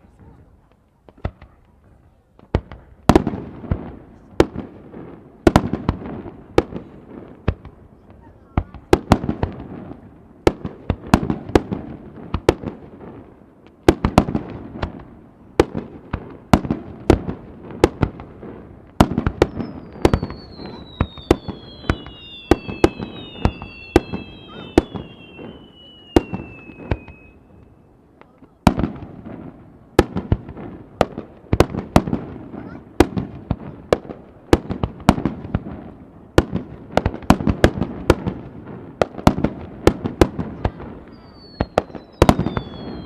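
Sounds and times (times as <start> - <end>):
fireworks bangs with rumble: 0.1 - 43.0
falling firework whistles: 19.3 - 27.9, 41.0 - 43.0.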